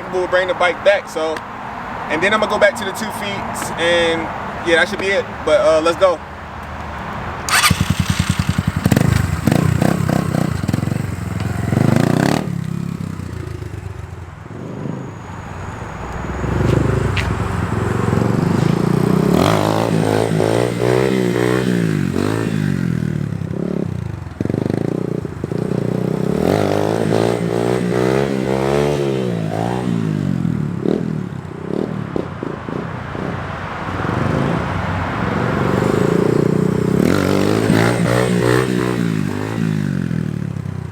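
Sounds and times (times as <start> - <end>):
dirt bike engine revving: 7.3 - 32.0, 34.1 - 40.9
bike clatter: 7.5 - 13.8.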